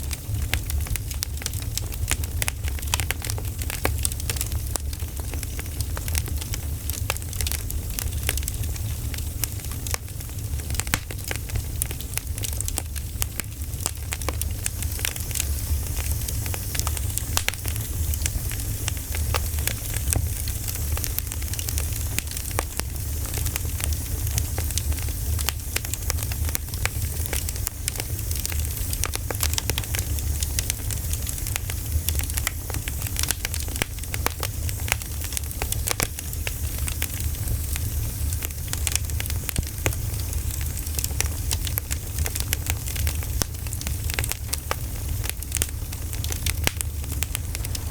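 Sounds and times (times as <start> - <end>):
campfire crackling: 0.0 - 47.9
steady low rumble: 45.5 - 47.9.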